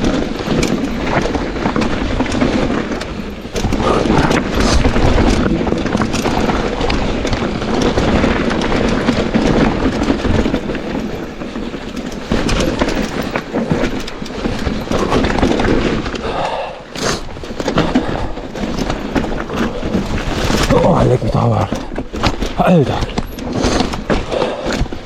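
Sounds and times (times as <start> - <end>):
bike rattling over bumps: 0.0 - 25.0
wind noise: 0.0 - 25.0.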